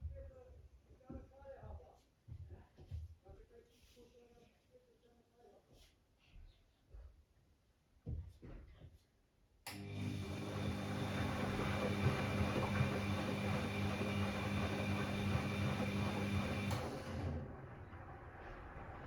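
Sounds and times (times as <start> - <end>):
washing machine drum motor humming: 9.8 - 19.0.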